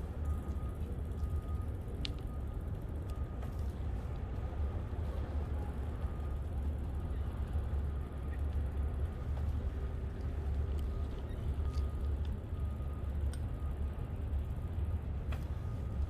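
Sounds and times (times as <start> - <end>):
faint tick: 13.2 - 13.5.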